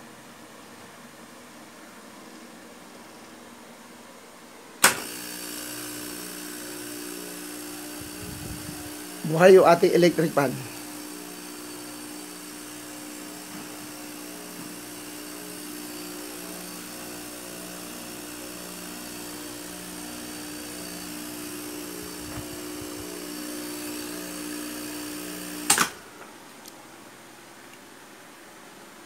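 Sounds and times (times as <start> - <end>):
electrical hum of fan and compressor: 0.0 - 29.0
switch click: 4.8 - 5.1.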